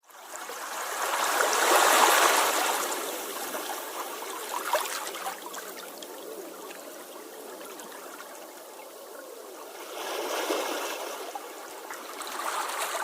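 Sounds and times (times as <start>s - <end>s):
sea waves washing on shore: 0.2s - 13.0s.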